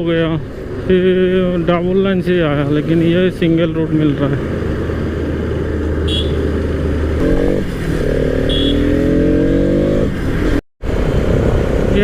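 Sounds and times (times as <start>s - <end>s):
wind and road noise: 0.0s - 12.0s
small motorcycle engine revving: 7.2s - 10.1s.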